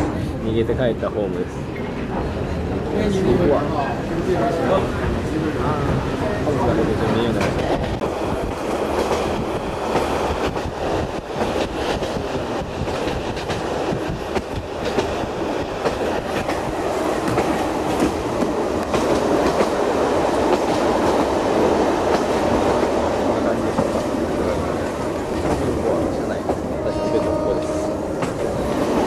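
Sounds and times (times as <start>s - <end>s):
train rumble: 0.0s - 29.0s.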